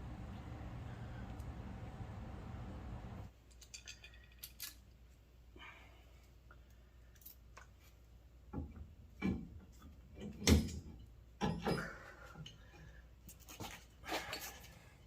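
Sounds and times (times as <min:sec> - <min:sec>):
tools and metal parts clunking: 0:03.5 - 0:04.9, 0:08.6 - 0:12.6.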